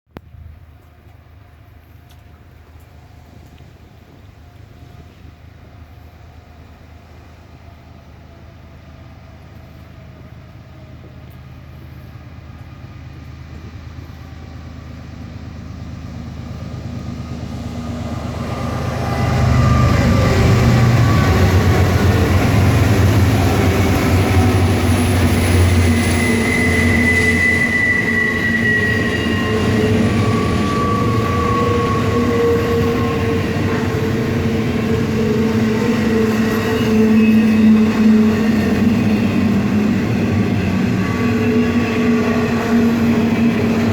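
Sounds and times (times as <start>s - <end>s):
freight train passing: 0.2s - 43.9s
wheels squealing: 18.5s - 43.9s.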